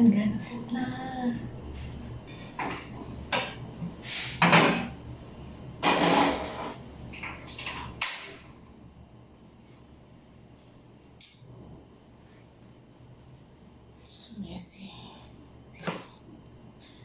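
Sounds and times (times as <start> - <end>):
cookware clattering and scraping: 4.4 - 5.0, 5.8 - 8.4.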